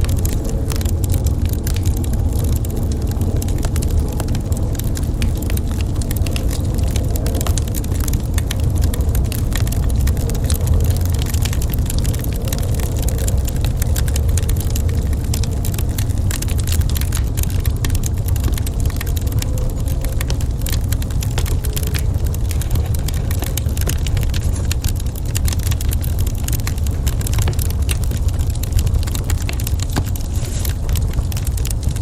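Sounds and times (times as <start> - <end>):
deep rumble: 0.0 - 32.0
wood fire crackling: 0.0 - 32.0.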